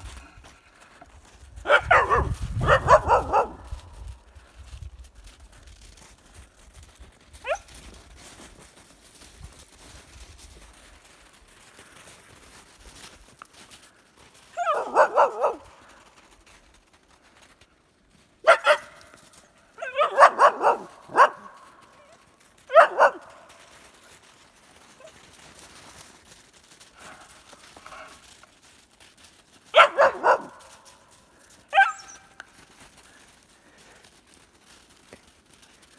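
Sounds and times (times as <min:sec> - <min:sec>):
dog yelping: 0:01.7 - 0:03.6, 0:07.4 - 0:07.6, 0:14.6 - 0:15.6, 0:19.8 - 0:23.3, 0:29.8 - 0:30.6, 0:31.7 - 0:32.3
dog barking quickly: 0:01.7 - 0:03.7, 0:14.6 - 0:15.6, 0:19.8 - 0:21.5, 0:22.7 - 0:23.3, 0:29.8 - 0:30.6.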